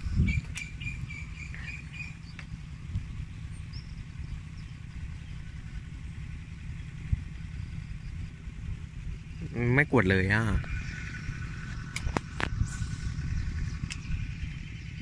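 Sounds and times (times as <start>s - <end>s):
bird chirping: 0.0s - 8.4s, 10.4s - 15.0s
steady low rumble: 0.0s - 15.0s
sharp clicks: 0.4s - 0.8s, 11.7s - 12.6s.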